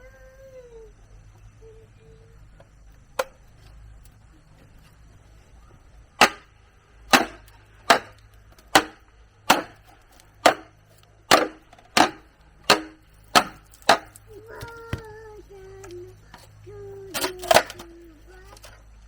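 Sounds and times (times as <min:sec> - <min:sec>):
chopping wood: 0:06.2 - 0:15.2.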